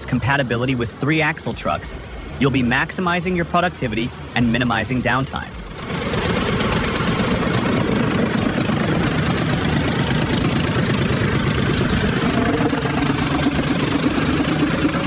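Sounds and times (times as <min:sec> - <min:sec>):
heavy machine engine running: 0:05.6 - 0:15.0.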